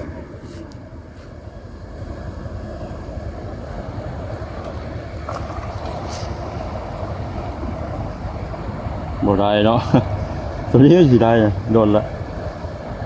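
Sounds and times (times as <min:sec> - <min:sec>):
river water rushing over rapids: 0:02.2 - 0:10.9.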